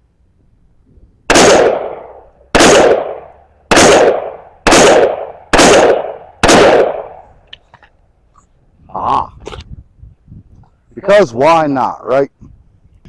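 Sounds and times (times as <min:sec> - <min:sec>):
rifle shots: 0:01.3 - 0:07.3.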